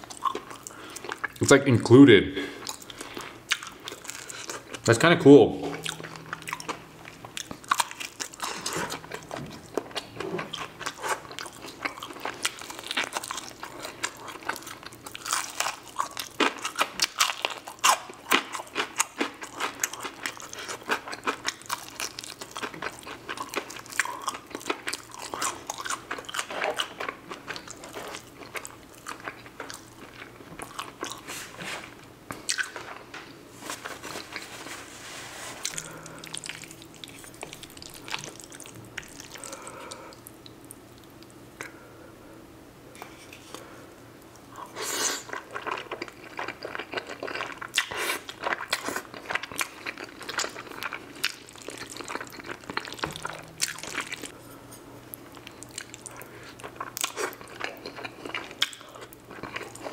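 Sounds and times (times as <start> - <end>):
biting and chewing crispy chicken: 5.8 - 31.3, 44.6 - 54.3, 55.4 - 59.9.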